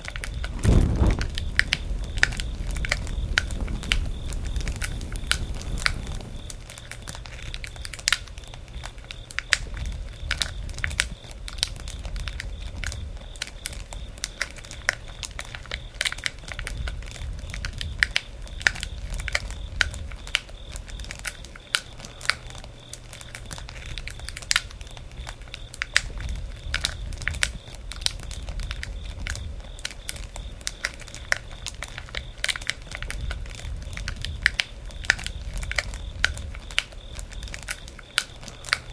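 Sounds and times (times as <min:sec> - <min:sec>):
low steady rumble: 0:00.5 - 0:06.6
bonfire crackling: 0:00.5 - 0:06.7
sharp pops and snaps: 0:00.5 - 0:06.7.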